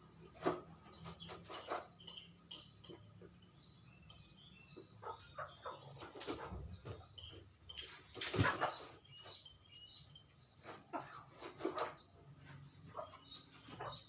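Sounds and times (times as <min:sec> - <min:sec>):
chickens chirping: 0:00.0 - 0:14.0
knocks and rustles: 0:06.0 - 0:09.5.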